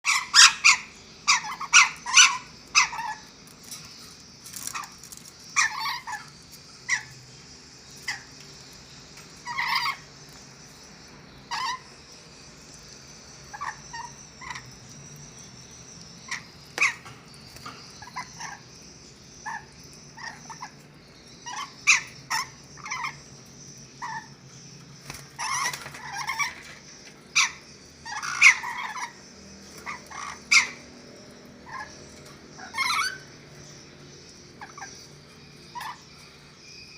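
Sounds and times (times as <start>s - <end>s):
parrots screeching: 0.0s - 3.9s, 4.5s - 7.2s, 8.0s - 8.3s, 9.4s - 10.1s, 11.5s - 12.0s, 13.5s - 14.7s, 16.2s - 17.2s, 18.0s - 18.6s, 19.4s - 23.2s, 24.0s - 24.4s, 25.1s - 34.0s, 34.6s - 36.2s.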